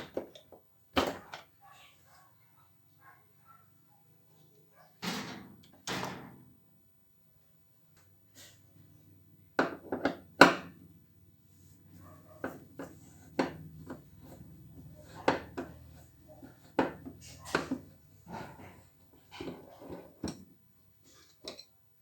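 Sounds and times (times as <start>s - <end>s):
tools and parts clattering: 0.0s - 1.5s, 12.2s - 21.7s.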